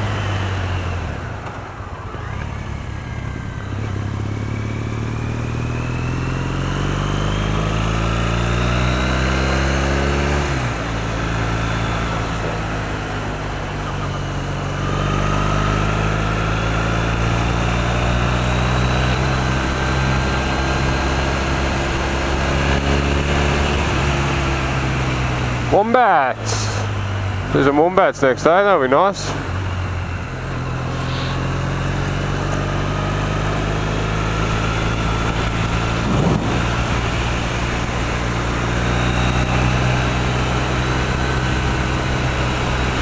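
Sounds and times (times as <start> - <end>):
motorcycle engine accelerating: 0.0 - 43.0
wind rush: 34.6 - 38.8.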